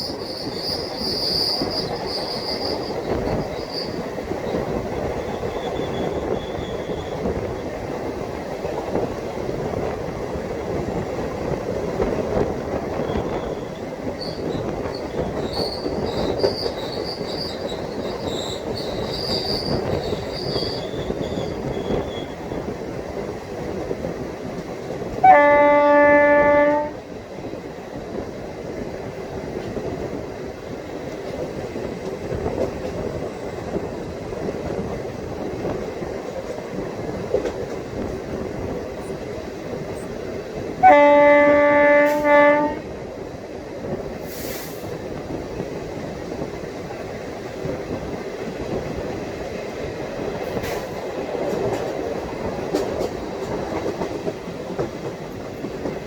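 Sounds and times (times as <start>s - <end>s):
high wheel squeal: 0.0s - 7.4s, 13.0s - 22.6s
train coaches rumbling: 0.0s - 56.0s
locomotive horn blast: 25.2s - 27.0s, 40.8s - 42.9s.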